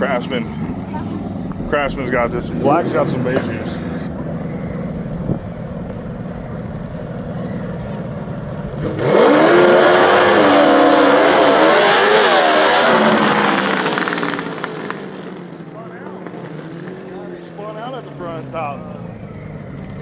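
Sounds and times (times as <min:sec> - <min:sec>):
lawn mower engine at full throttle: 0:01.4 - 0:15.7.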